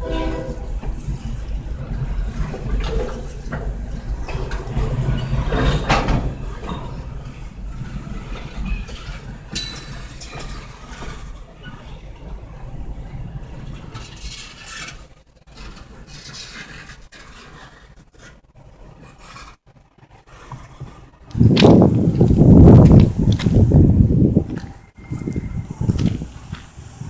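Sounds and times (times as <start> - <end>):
freight train rumbling past: 0.0 - 15.0, 21.0 - 27.0.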